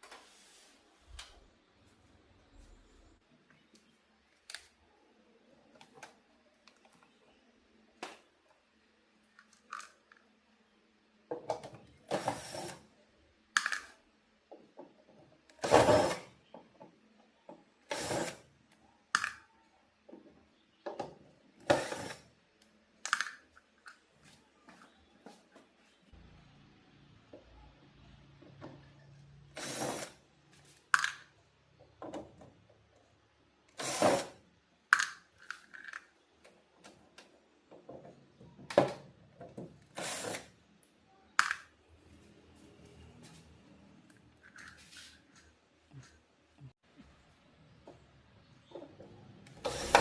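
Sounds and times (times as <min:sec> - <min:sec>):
tools clicking and knocking: 0:23.0 - 0:24.1, 0:34.9 - 0:39.8.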